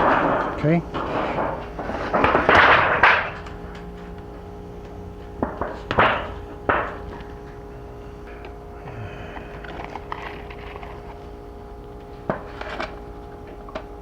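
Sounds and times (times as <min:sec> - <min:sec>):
faint steady hum: 0:00.0 - 0:14.0
sharp knocks: 0:05.2 - 0:07.7.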